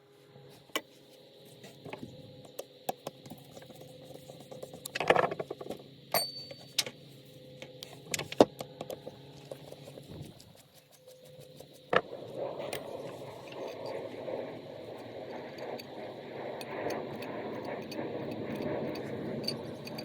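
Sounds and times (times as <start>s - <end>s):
faint steady hum: 0.0s - 20.0s
metal parts clicking and clinking: 17.8s - 20.0s.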